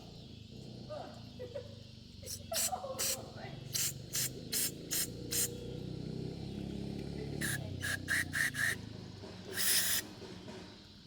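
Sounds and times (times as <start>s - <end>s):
aerosol spray squirts: 9.5s - 10.0s.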